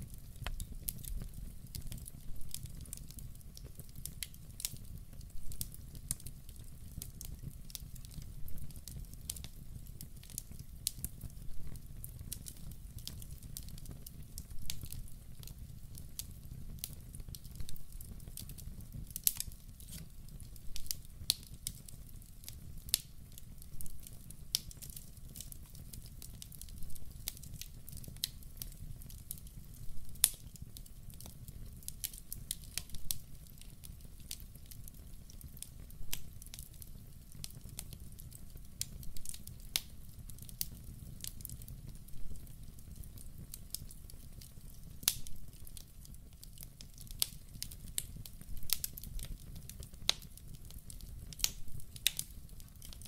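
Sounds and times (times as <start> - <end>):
fire crackles and pops: 0.0 - 53.0
rumble of fire flames: 0.0 - 53.0.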